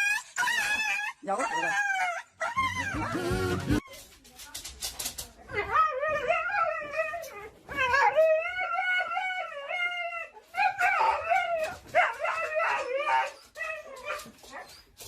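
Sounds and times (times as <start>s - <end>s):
dog howling: 1.6s - 3.8s.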